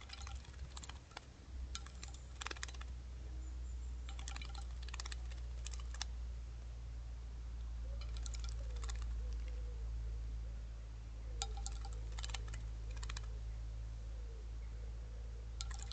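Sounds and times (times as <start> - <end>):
rapid sharp clicks: 0.0 - 2.9, 4.1 - 6.1, 11.4 - 13.3, 15.6 - 15.9
steady low rumble: 0.0 - 15.9.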